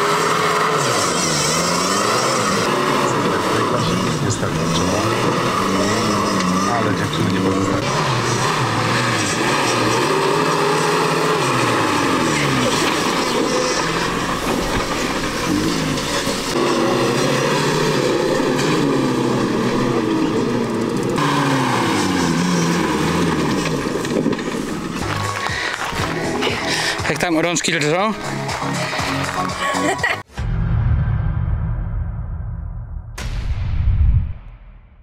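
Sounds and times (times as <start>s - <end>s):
off-road vehicle engine revving: 0.0s - 27.2s.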